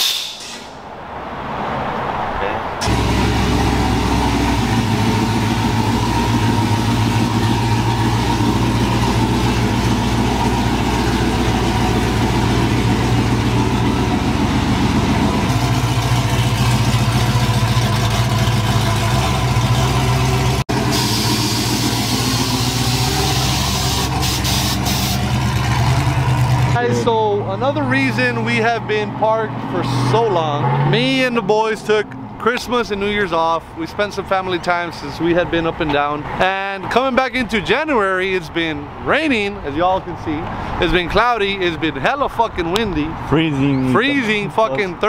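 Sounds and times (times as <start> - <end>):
hiss: 0.0 - 0.7, 20.8 - 25.2
car engine idling: 2.8 - 30.3.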